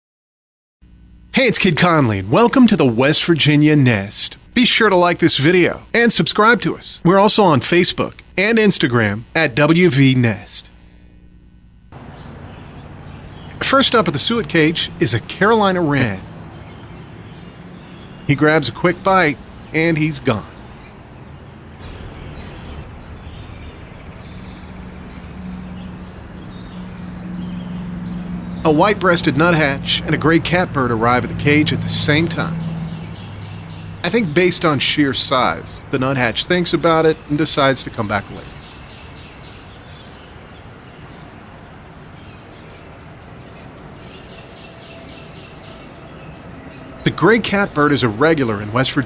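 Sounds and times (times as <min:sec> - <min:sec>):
low background hiss: 0:00.8 - 0:49.0
low steady hum: 0:00.8 - 0:49.0
high-pitched insect trilling: 0:11.9 - 0:49.0.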